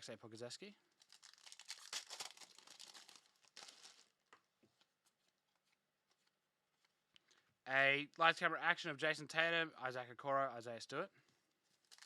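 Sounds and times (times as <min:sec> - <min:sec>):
foil wrapper crinkling: 0:00.9 - 0:04.3, 0:11.6 - 0:12.0.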